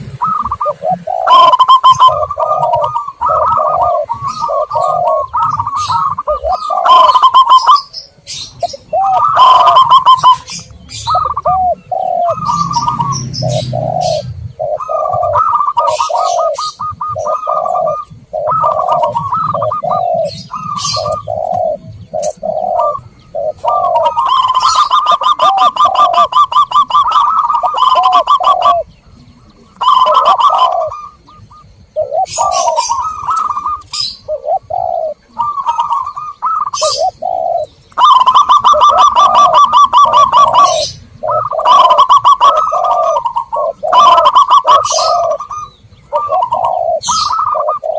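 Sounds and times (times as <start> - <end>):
doves cooing: 0.0 - 47.9
small birds chirping: 0.0 - 47.9.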